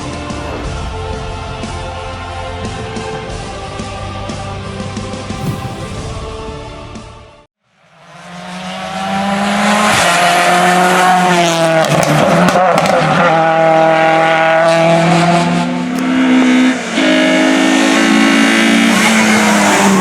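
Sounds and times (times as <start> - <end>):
race car engine at high revs: 8.1 - 20.0.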